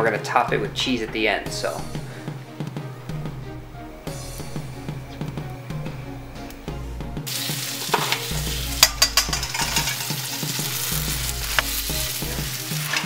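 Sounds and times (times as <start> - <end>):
tomatoes and garlic sizzling in pan: 7.2 - 13.0.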